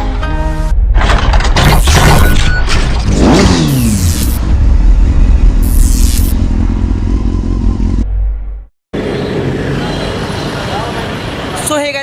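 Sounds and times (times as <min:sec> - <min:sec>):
motorcycle engine revving: 0:03.0 - 0:08.7.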